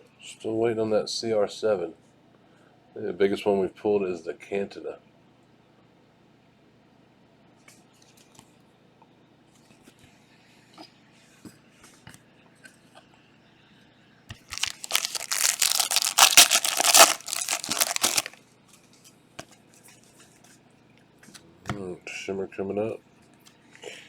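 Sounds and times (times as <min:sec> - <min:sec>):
card pack wrapper tearing: 0:14.5 - 0:18.4.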